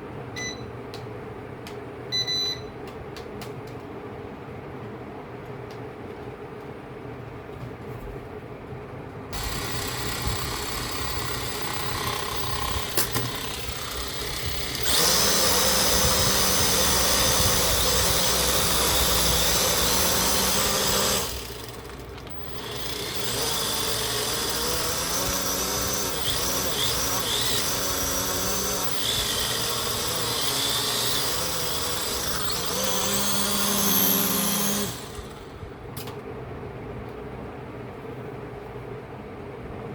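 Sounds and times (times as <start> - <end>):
small motor whining: 9.4 - 35.6.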